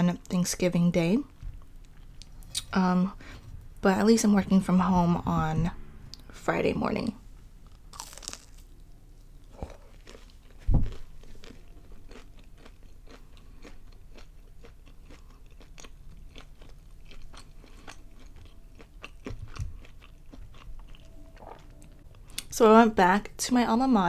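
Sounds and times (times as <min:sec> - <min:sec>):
crunchy chewing: 0:07.6 - 0:22.4
loud low thump: 0:10.6 - 0:11.0.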